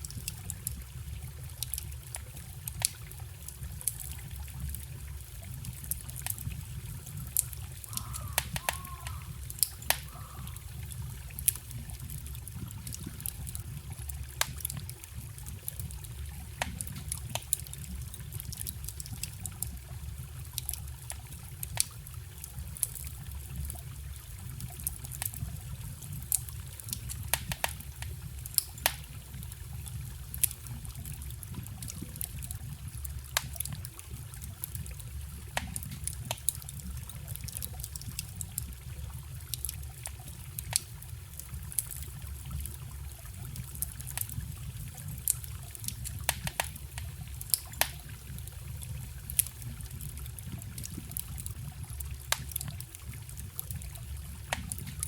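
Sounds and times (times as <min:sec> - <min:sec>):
wood fire crackling: 0:00.0 - 0:55.0
forest stream rushing: 0:07.8 - 0:10.8.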